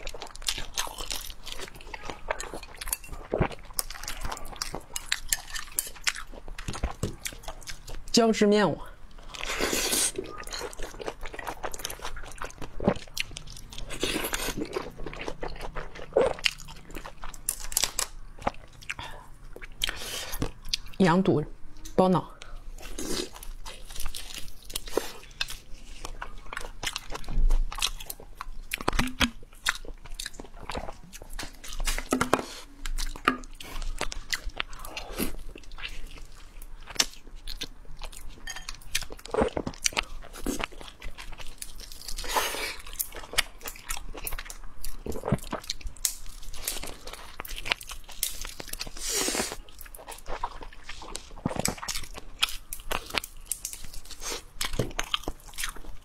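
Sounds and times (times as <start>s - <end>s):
close chewing and mouth clicks: 0.0s - 8.1s, 9.0s - 21.0s, 21.8s - 56.0s.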